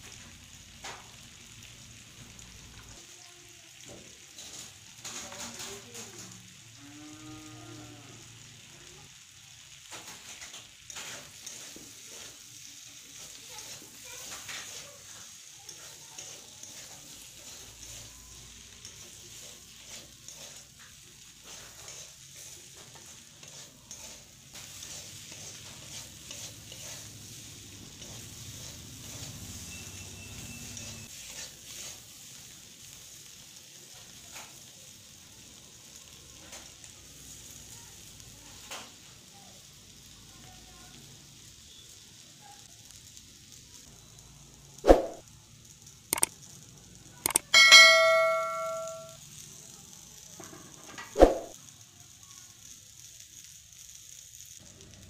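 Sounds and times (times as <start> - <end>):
vegetables sizzling in oil: 0.0 - 55.0
metal spatula scraping a pan: 4.3 - 5.8, 9.9 - 32.3.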